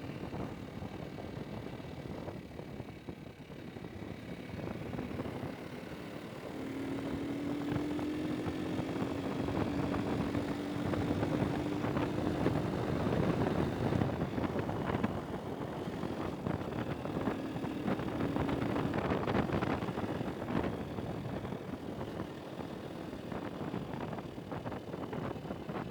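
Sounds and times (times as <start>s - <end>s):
vehicle engine running: 0.0s - 25.9s
rushing wind noise: 8.8s - 25.9s.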